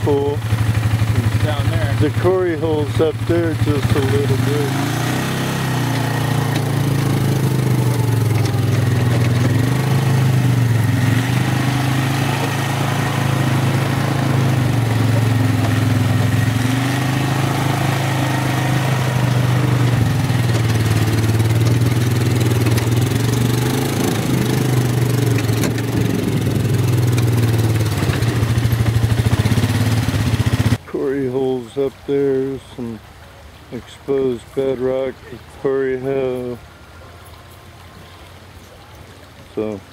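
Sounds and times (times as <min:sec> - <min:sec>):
vehicle engine running: 0:00.0 - 0:31.9.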